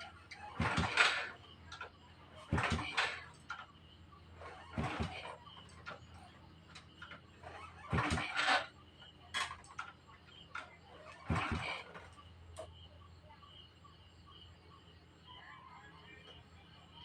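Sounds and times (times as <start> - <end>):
motorcycle being kick-started: 0.0 - 12.8.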